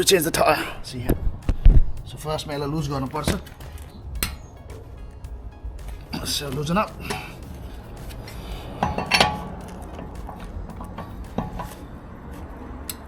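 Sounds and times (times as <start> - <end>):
wheel wrench clinking on nuts: 5.9 - 13.0.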